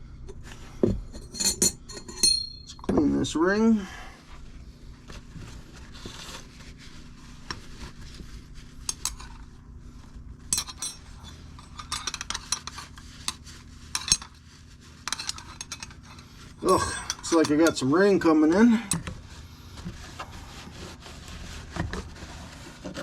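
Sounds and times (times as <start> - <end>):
small steel parts clinking: 1.2 - 2.8, 10.5 - 12.7, 15.1 - 17.8.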